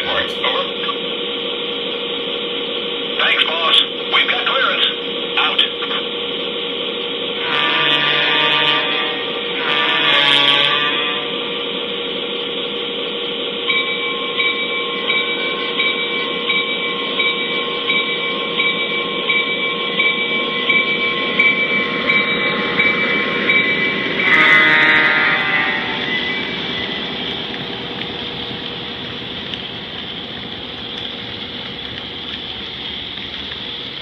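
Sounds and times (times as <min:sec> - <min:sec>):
diesel engine rumble: 0:00.0 - 0:04.4, 0:25.4 - 0:34.0
locomotive horn blast: 0:07.3 - 0:11.9, 0:20.4 - 0:30.2
bell ringing: 0:13.6 - 0:28.4.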